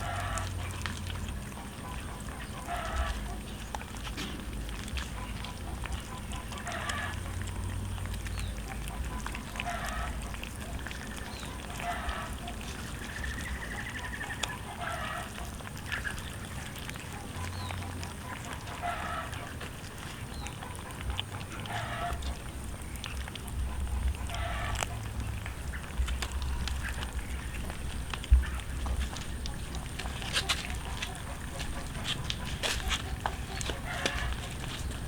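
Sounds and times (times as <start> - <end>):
low background rumble: 0.0 - 35.0.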